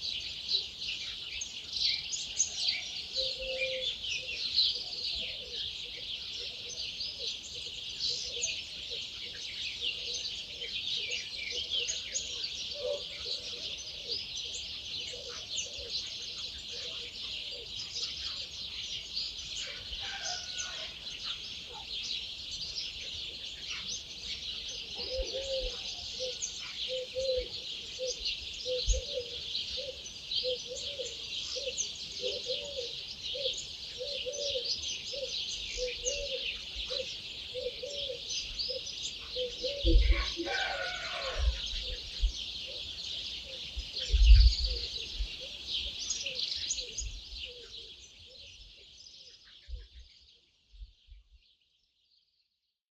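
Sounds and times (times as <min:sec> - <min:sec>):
songbirds singing and chirping: 0:00.0 - 0:52.8
low-pitched repeated bird call: 0:02.5 - 0:07.3, 0:24.8 - 0:48.8.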